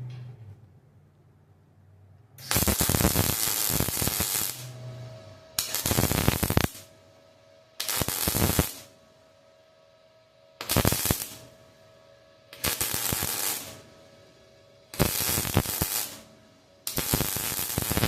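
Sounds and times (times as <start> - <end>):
welding arc crackling: 2.4 - 4.8, 5.6 - 6.9, 7.8 - 8.9, 10.6 - 11.6, 12.5 - 13.8, 14.9 - 18.0.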